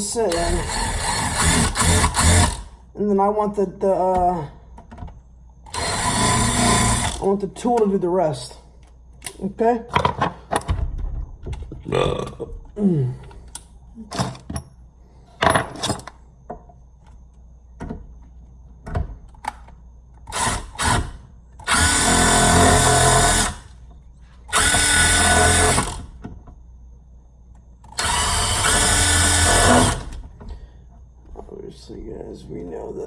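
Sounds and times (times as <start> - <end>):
cordless drill boring: 0.3 - 2.7, 5.7 - 7.2, 20.3 - 23.6, 24.5 - 26.0, 28.0 - 30.2.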